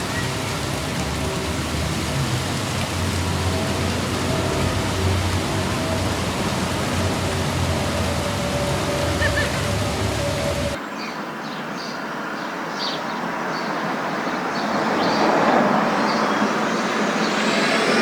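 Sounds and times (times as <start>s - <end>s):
moving car drone: 0.0s - 10.8s.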